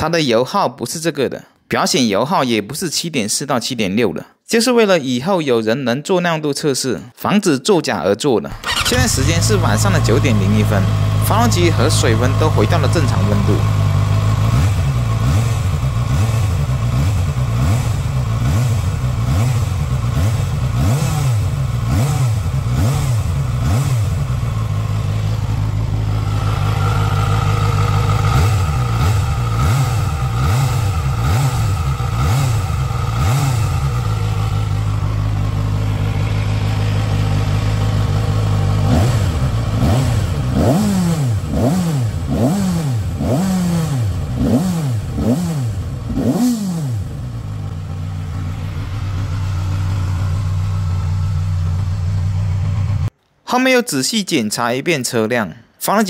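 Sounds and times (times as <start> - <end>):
motorcycle engine revving: 8.5 - 53.1.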